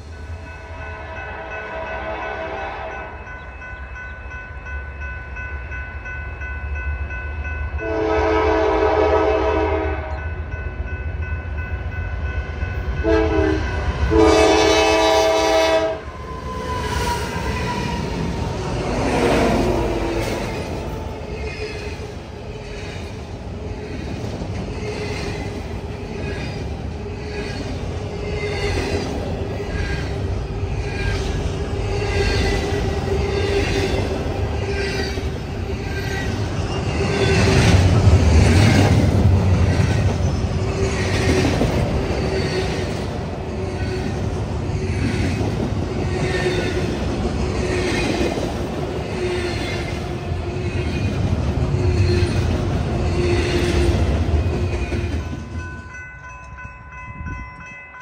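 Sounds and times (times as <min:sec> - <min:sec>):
freight train wheels rumbling on rail: 0:00.0 - 0:58.0.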